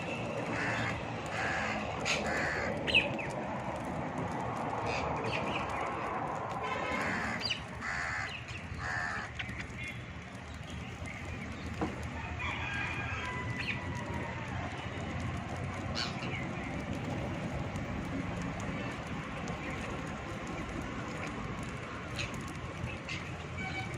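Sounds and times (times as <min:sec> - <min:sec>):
birds squawking and chirping: 0:00.1 - 0:03.4, 0:04.8 - 0:11.8, 0:15.8 - 0:16.8, 0:22.0 - 0:23.9.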